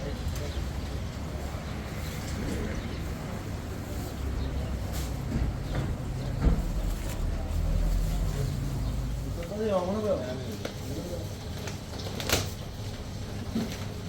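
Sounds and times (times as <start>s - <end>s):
vehicle engine rumble: 0.0s - 10.8s.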